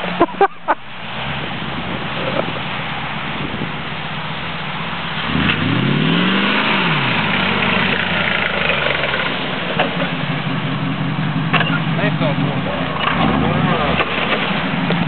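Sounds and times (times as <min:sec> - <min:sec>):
truck engine revving and idling: 0:00.0 - 0:15.0.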